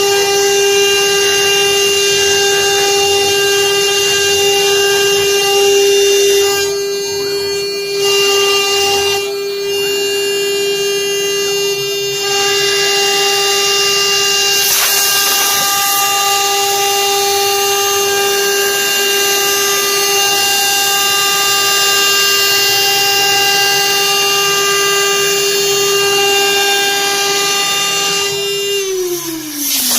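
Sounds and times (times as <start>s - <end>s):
router spindle whining: 0.0s - 29.9s
hiss of cutting wood: 14.5s - 17.3s, 29.2s - 29.9s.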